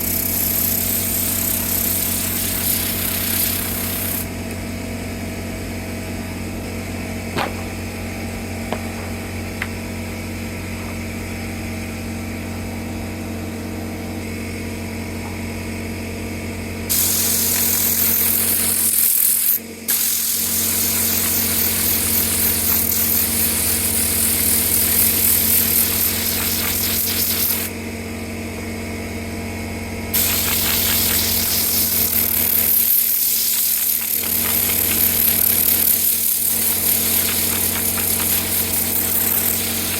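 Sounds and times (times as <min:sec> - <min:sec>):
loud hissing air rush: 0:00.0 - 0:04.5, 0:16.9 - 0:27.8, 0:30.1 - 0:39.9
machine motor running: 0:29.5 - 0:39.9.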